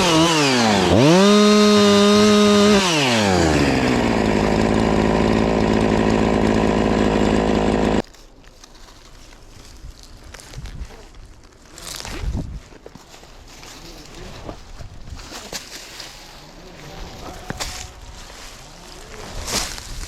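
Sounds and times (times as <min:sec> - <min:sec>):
chainsaw revving and idling: 0:00.0 - 0:08.0.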